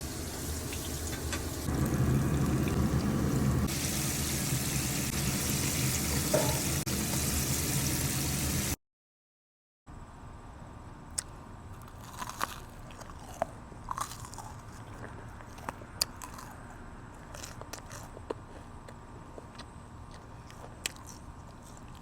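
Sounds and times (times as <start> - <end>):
chicken frying in hot oil: 0.0 - 8.8.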